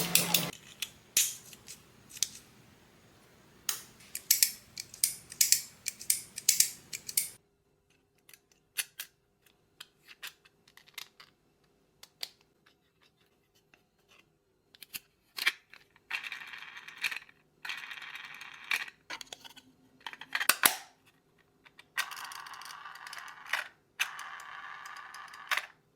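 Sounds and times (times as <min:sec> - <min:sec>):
rapid ratchet-like clicking: 0:04.1 - 0:07.4.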